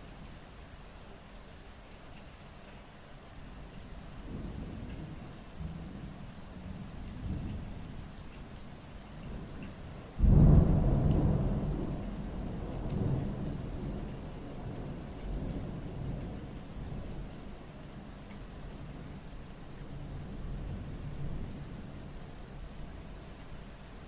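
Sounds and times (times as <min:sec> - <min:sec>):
steady rain: 0:00.0 - 0:24.0
thunder rumbling: 0:10.2 - 0:17.0.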